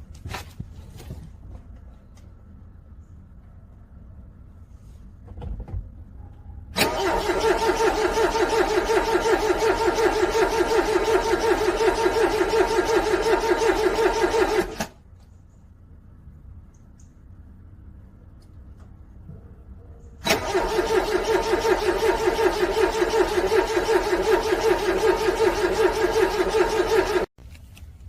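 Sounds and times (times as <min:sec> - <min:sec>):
car starter cranking engine: 0:06.8 - 0:15.0, 0:20.2 - 0:27.3.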